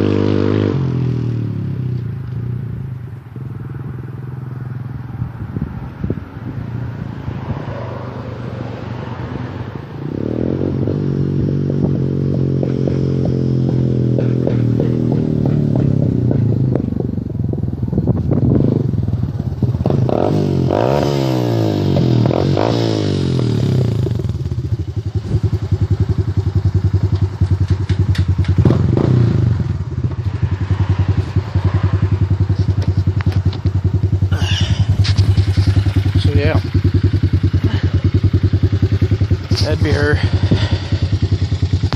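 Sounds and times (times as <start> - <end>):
atv engine running: 0.0 - 7.1, 10.0 - 41.9
atv engine idling: 23.1 - 41.9.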